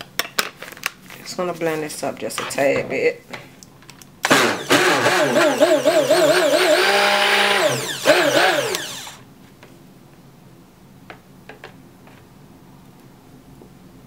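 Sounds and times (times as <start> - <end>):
stick blender motor running: 4.2 - 9.2.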